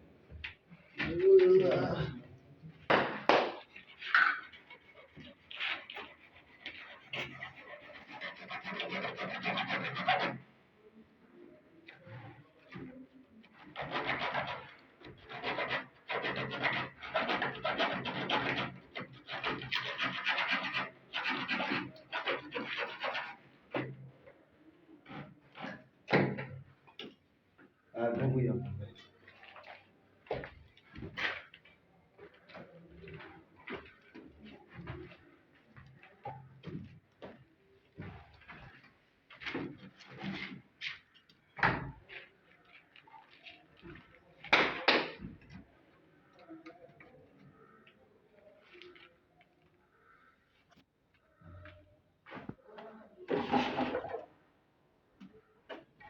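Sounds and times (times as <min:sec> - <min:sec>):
scraping noises: 0:02.9 - 0:10.5, 0:11.8 - 0:24.0, 0:51.4 - 0:54.3
rubbing or scraping strokes: 0:03.5 - 0:10.4.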